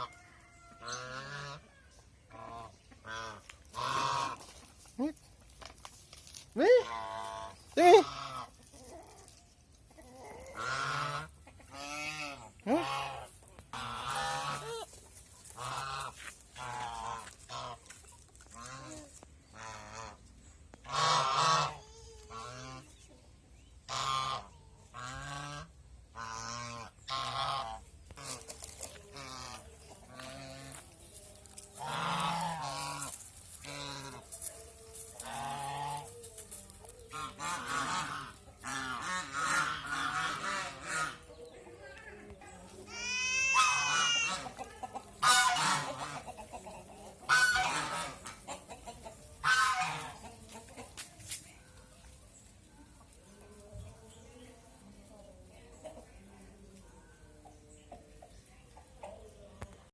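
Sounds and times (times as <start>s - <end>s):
geese honking: 0.0s - 5.1s, 6.6s - 8.7s, 10.5s - 22.9s, 23.9s - 41.4s, 43.4s - 50.8s.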